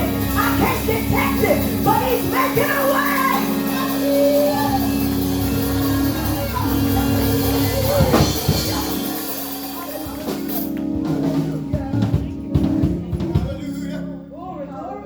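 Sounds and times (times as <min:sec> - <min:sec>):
wavering voices singing: 0:00.0 - 0:09.2
held chord: 0:00.0 - 0:15.0
drum hits: 0:04.5 - 0:10.6.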